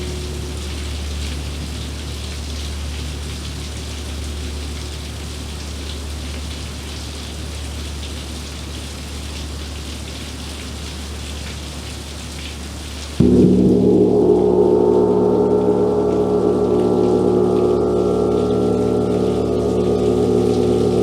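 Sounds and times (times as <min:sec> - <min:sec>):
low rumble: 0:00.0 - 0:02.1, 0:13.2 - 0:21.0
steady rain hissing: 0:00.0 - 0:21.0.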